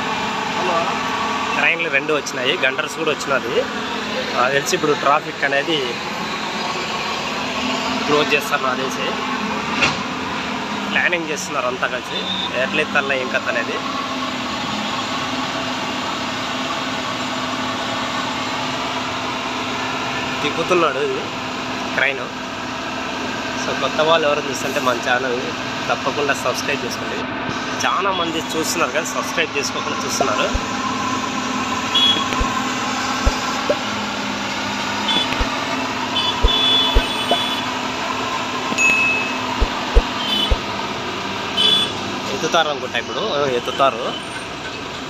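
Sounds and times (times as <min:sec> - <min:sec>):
road traffic engines humming: 0:00.0 - 0:45.0
engine running steadily: 0:29.8 - 0:40.7
short low thumps: 0:32.2 - 0:32.6, 0:35.1 - 0:35.5, 0:36.4 - 0:37.5, 0:39.6 - 0:40.6
high-pitched horn beeps: 0:35.1 - 0:35.5.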